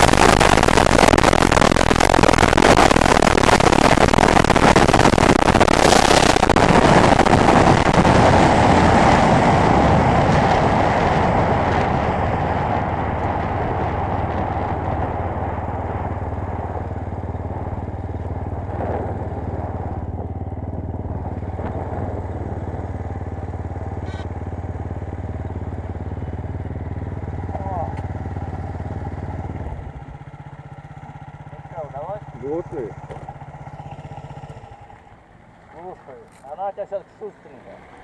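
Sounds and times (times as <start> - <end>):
motorcycle slowing to idle: 9.8 - 38.0.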